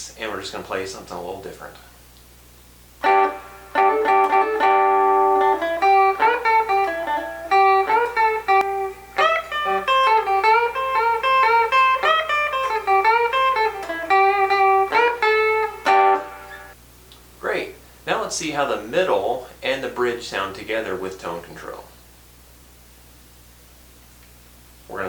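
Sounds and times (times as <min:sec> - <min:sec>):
clean electric guitar riff: 0:03.0 - 0:16.8.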